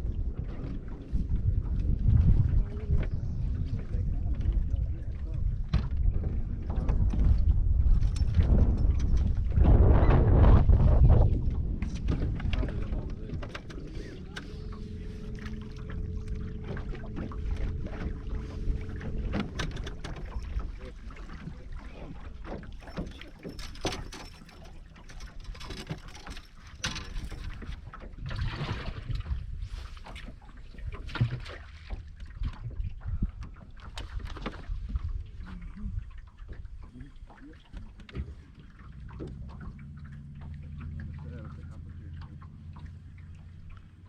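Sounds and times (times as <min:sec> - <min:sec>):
low rumble: 0:00.0 - 0:24.9, 0:38.3 - 0:44.0
boat motor hum: 0:00.0 - 0:44.0
knocks of gear and hull: 0:05.6 - 0:10.6, 0:11.4 - 0:28.6.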